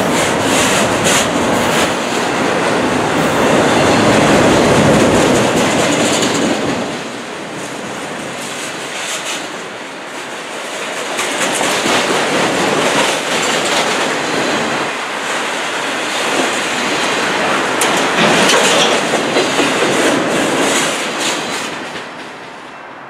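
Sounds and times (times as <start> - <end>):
steel wheels rushing on rail: 0.0 - 23.0
wheels clicking over rail joints: 4.0 - 9.6, 10.2 - 22.6.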